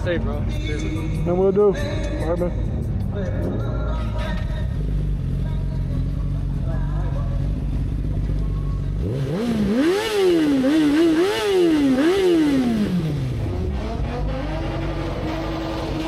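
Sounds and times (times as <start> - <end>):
engine revving: 7.4 - 16.0.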